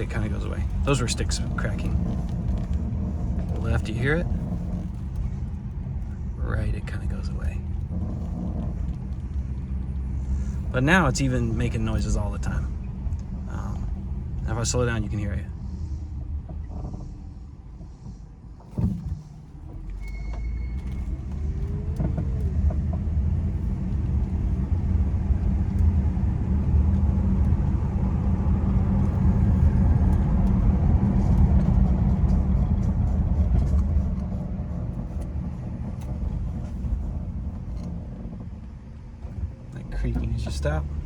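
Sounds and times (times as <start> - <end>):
road and drivetrain rumble: 0.0 - 41.0.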